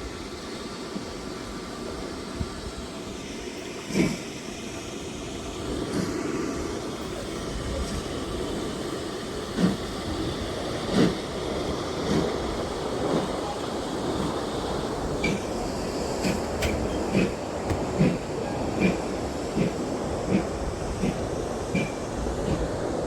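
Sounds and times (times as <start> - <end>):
train rumbling: 0.0 - 23.0
train wheel knocks: 13.1 - 22.6.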